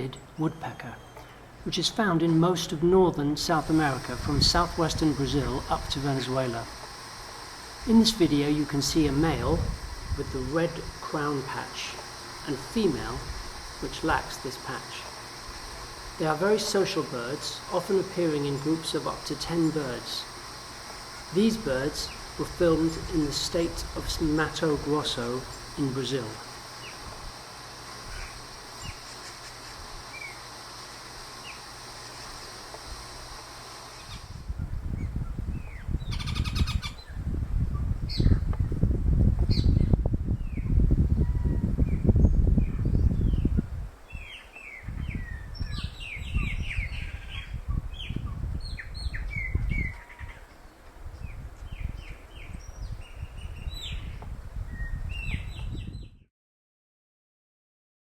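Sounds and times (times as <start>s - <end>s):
high insect buzz: 3.3s - 37.2s, 42.1s - 54.2s
woodpeckers calling: 3.3s - 37.2s, 44.1s - 54.2s.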